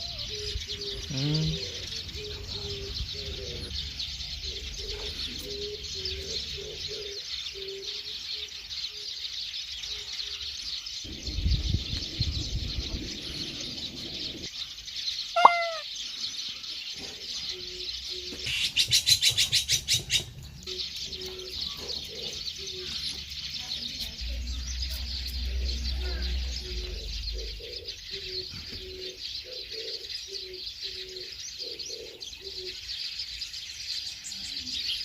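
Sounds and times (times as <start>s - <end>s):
low cooing notes: 0.0s - 3.8s, 15.4s - 15.8s
birds chirping: 0.0s - 35.0s
short bird call: 15.4s - 15.9s.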